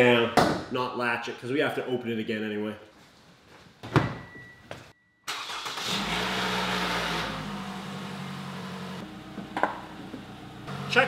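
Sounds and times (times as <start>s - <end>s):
car engine starting and idling: 5.3s - 11.0s.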